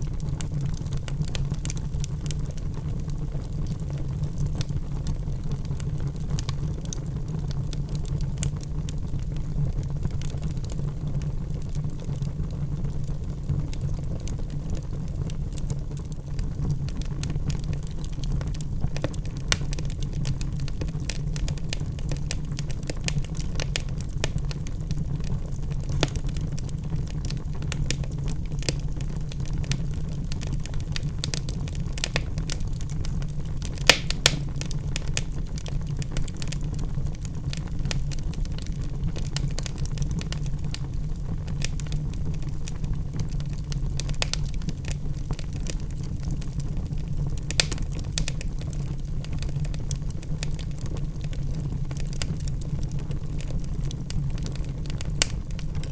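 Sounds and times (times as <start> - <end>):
burning wood crackling and popping: 0.0 - 55.9
fire rumbling: 0.0 - 55.9
sharp wood pops: 33.9 - 34.5.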